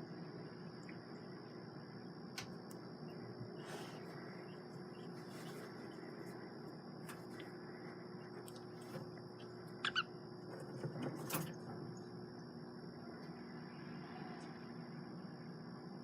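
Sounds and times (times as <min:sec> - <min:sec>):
steady background hum: 0:00.0 - 0:16.0
budgerigar chirps: 0:09.8 - 0:10.1.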